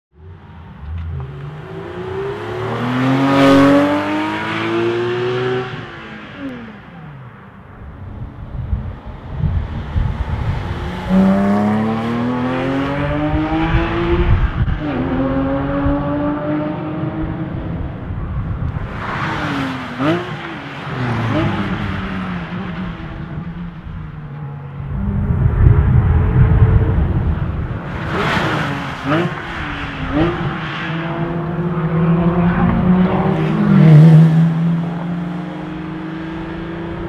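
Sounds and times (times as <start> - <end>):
car engine accelerating hard: 0.8 - 7.2, 9.2 - 18.0, 24.8 - 37.0.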